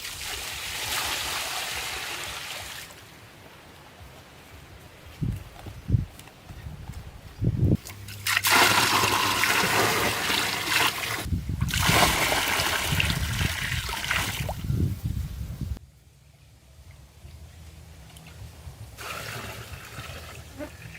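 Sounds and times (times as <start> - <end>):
water pouring and splashing: 0.0 - 3.0, 7.8 - 14.8, 19.0 - 20.9.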